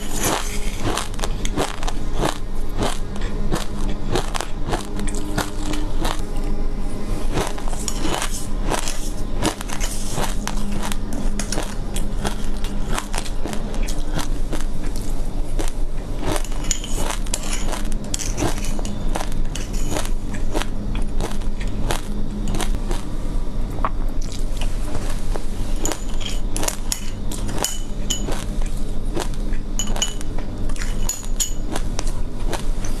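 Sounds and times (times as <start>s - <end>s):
seeds crunching in mouth: 0.0s - 6.5s, 7.2s - 23.1s
metal spoon on glass bowl: 16.4s - 20.0s, 25.8s - 28.4s, 29.8s - 31.6s.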